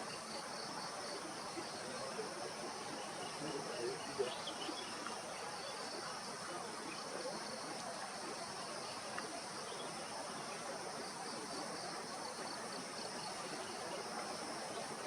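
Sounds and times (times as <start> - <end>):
faint tick: 9.1 - 9.3.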